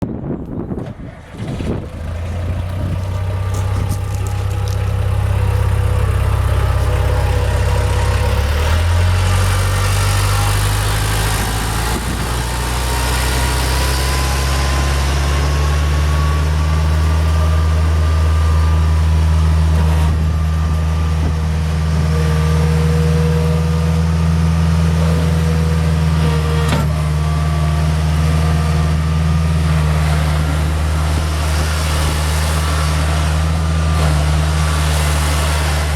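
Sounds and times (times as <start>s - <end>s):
skid steer engine running: 0.0s - 35.9s.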